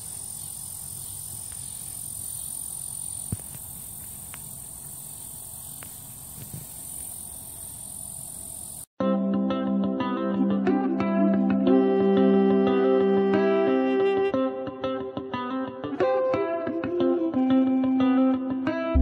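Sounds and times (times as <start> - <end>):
crickets chirping: 0.0 - 8.9.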